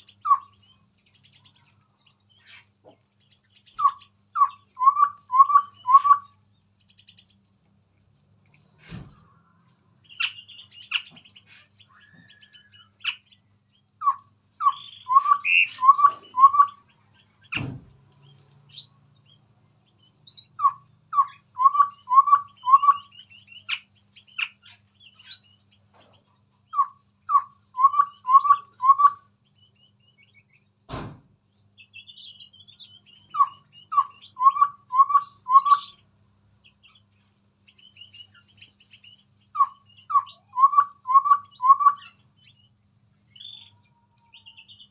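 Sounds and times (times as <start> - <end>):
bird whistled song phrase: 0.0 - 1.4, 3.6 - 6.4, 10.0 - 13.2, 14.0 - 17.7, 20.3 - 25.8, 26.7 - 30.7, 31.8 - 44.9
soft high bird chirps: 0.0 - 44.9.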